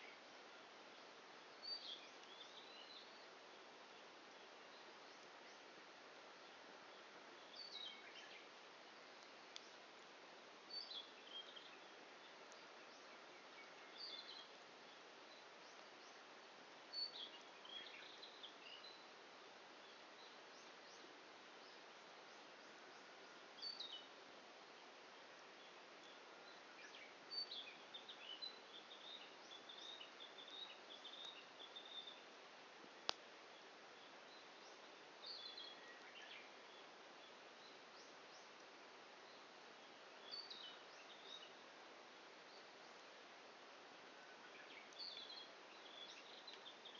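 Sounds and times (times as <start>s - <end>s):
faint steady hiss: 0.0s - 46.9s
small songbird twittering: 10.7s - 16.2s
small bird chirping: 25.6s - 32.3s.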